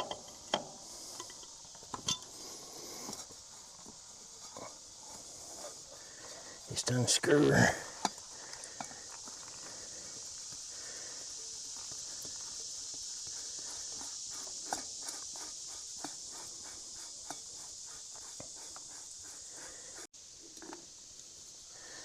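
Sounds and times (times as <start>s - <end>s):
light metallic clicks and knocks: 0.0s - 2.4s
steady high hiss: 0.0s - 22.0s.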